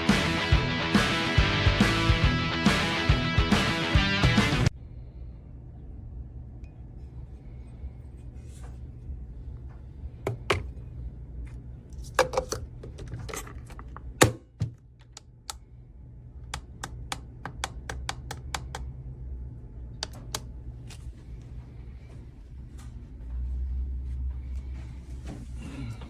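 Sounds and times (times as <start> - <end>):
steady low hum: 4.6 - 26.0
coffee maker clicks and knocks: 10.3 - 10.7.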